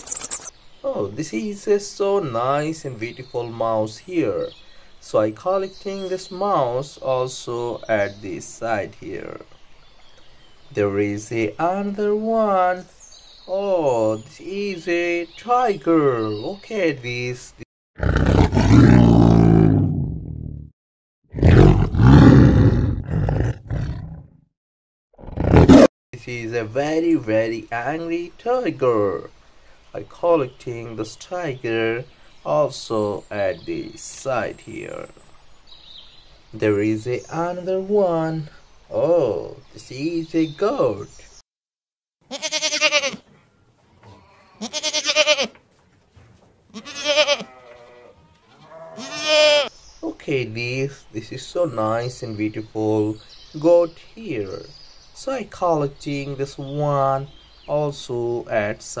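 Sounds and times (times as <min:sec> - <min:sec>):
tiger roaring: 0:18.0 - 0:20.4, 0:21.3 - 0:24.4, 0:25.2 - 0:25.9
goats bleating: 0:42.3 - 0:43.2, 0:44.0 - 0:45.6, 0:46.7 - 0:49.7.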